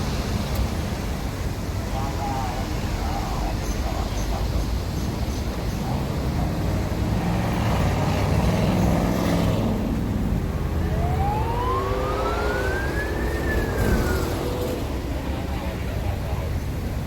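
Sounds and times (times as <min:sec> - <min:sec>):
road traffic rumble: 0:00.0 - 0:17.0
rising whine: 0:09.6 - 0:16.0.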